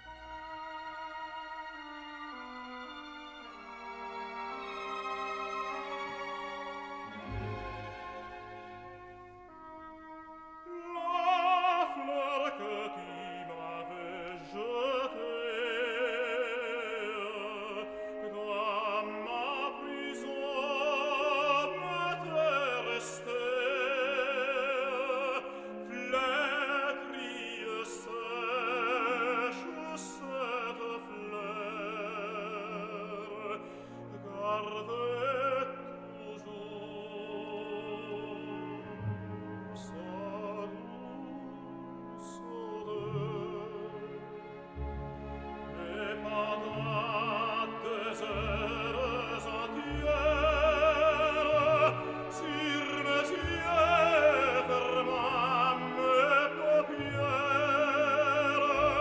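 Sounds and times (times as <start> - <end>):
orchestral accompaniment: 0.0 - 59.0
opera singer singing aria: 10.6 - 44.4, 45.6 - 59.0.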